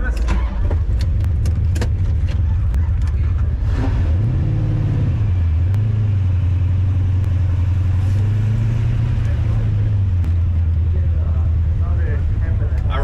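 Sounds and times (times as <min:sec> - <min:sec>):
sharp clicks: 0:00.0 - 0:03.2
car engine accelerating: 0:00.0 - 0:13.0.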